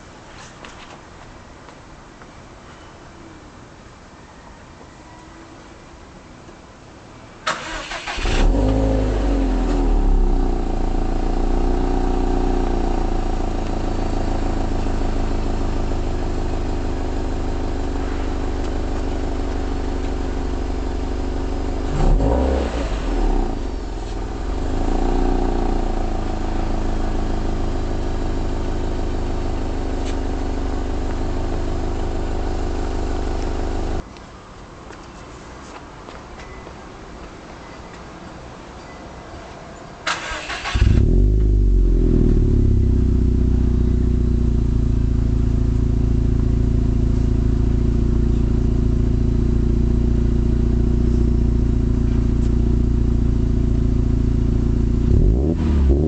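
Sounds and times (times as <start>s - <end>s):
starter cranking engine: 7.5s - 8.4s
car engine idling: 7.6s - 34.0s, 40.2s - 56.0s.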